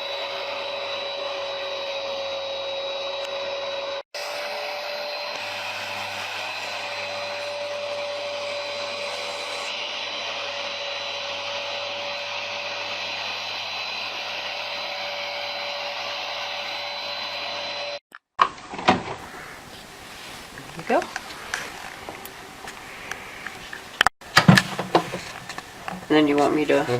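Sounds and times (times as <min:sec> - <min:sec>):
carpet cleaner whining: 0:00.0 - 0:18.0.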